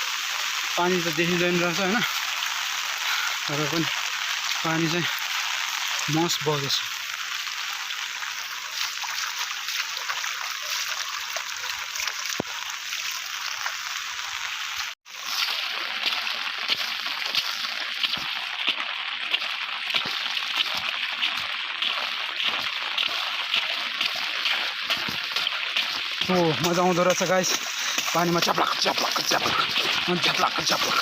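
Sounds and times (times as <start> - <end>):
rushing water: 0.0 - 31.0
feet sloshing through water: 8.5 - 12.6, 15.1 - 31.0.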